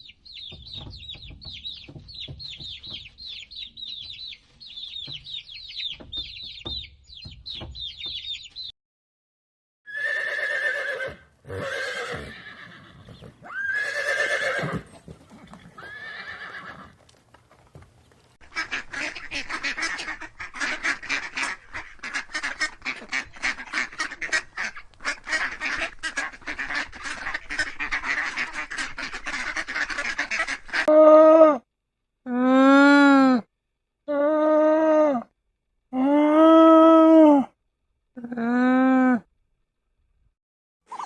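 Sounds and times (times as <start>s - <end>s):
horse whinnying: 9.9s - 17.0s
waterfowl honking: 18.4s - 30.9s.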